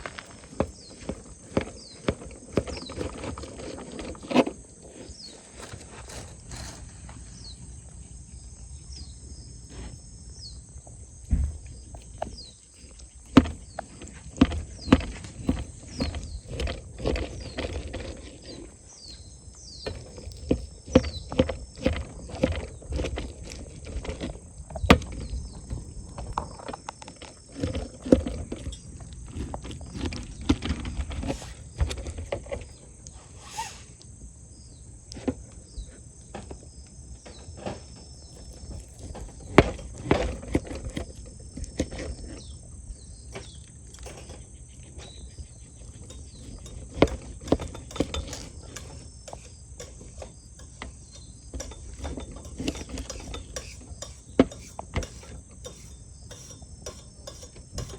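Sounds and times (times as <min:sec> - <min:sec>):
sharp clicks and knocks: 0:46.0 - 0:57.9.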